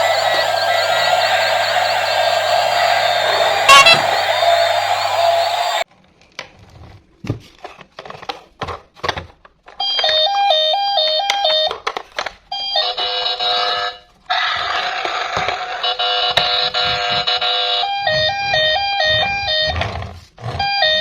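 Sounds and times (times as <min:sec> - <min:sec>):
electronic beeping tune: 0:00.0 - 0:05.8.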